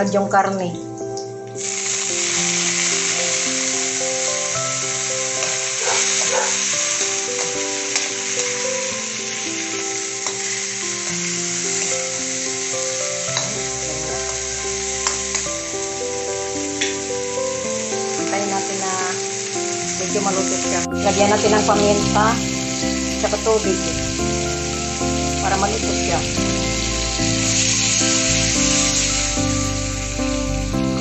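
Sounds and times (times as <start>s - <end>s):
chicken sizzling in hot oil: 1.6s - 31.0s.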